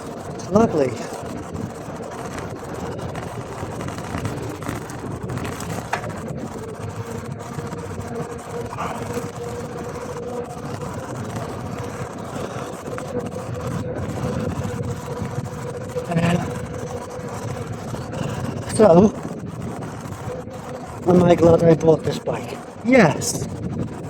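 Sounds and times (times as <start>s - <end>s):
bike tyre noise on gravel: 0.0s - 24.0s
wind rushing on microphone: 0.0s - 24.0s.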